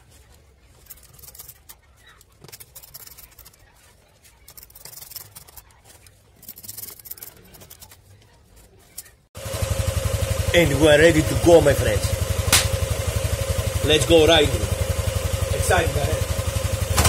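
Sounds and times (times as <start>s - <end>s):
plastic clicks and scrapes: 0.8s - 9.2s.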